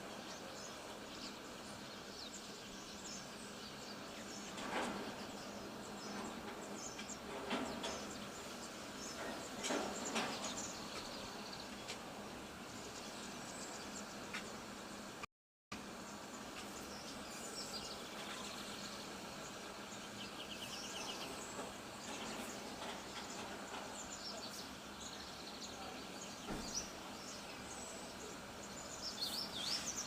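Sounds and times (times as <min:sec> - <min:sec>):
birds chirping: 0:00.0 - 0:15.2, 0:15.8 - 0:30.0
background hiss: 0:15.8 - 0:30.0.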